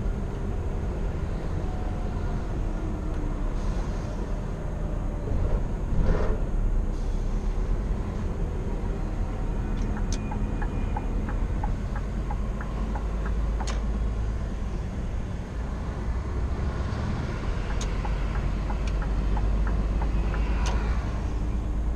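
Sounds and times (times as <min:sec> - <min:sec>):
road noise: 0:00.0 - 0:21.9
truck engine drone from inside cab: 0:00.0 - 0:21.9
light ticks: 0:09.8 - 0:13.8, 0:17.6 - 0:20.8.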